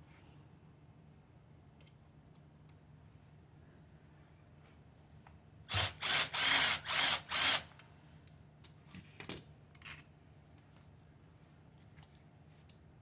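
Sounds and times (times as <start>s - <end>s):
power drill spinning: 5.7s - 7.7s.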